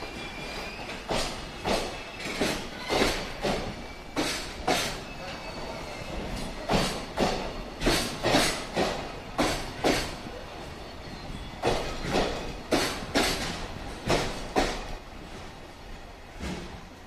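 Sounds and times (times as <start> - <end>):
train rolling rumble: 0.0 - 17.0
train wheels clacking over rail joint: 0.4 - 5.0, 6.1 - 10.2, 11.6 - 15.0.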